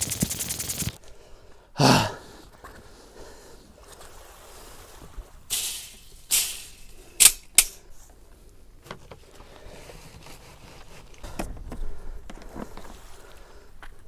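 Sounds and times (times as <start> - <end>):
rustling handling noise: 0.0 - 1.0.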